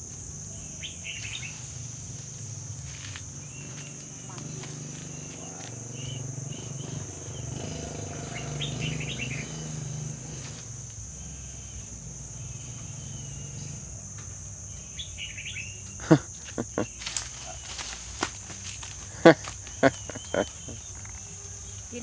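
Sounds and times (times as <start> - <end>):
high insect drone: 0.0 - 22.0
birds chirping: 0.2 - 10.2, 14.4 - 22.0.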